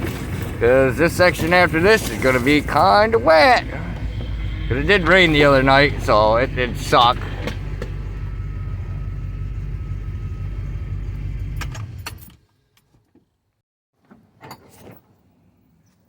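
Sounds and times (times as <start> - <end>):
truck engine running: 0.0 - 12.4.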